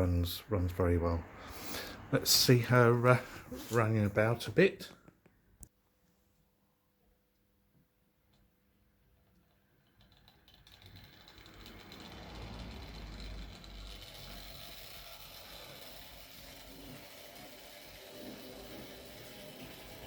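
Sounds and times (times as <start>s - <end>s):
wheels clicking along rails: 9.3s - 20.0s
electric motor whirring: 10.7s - 20.0s.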